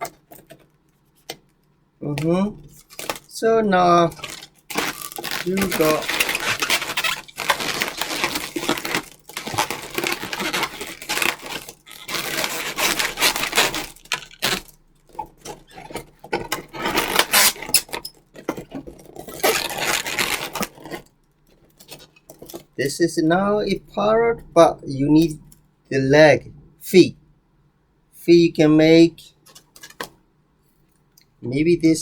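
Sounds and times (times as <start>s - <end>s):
rubber balloons squeaking: 2.1s - 21.1s.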